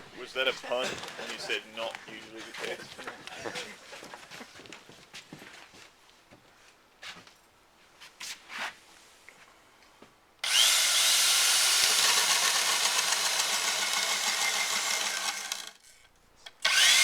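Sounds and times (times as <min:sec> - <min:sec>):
power drill boring into wood: 0:10.4 - 0:15.8, 0:16.6 - 0:17.0.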